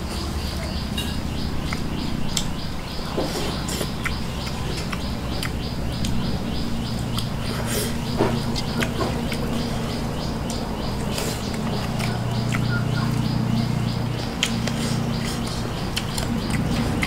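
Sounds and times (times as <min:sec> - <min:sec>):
steady low hum: 0:00.0 - 0:17.0
wet chewing and finger smacks: 0:01.6 - 0:02.6, 0:03.3 - 0:06.3, 0:07.0 - 0:07.6, 0:08.3 - 0:09.7, 0:10.4 - 0:13.2, 0:14.4 - 0:17.0.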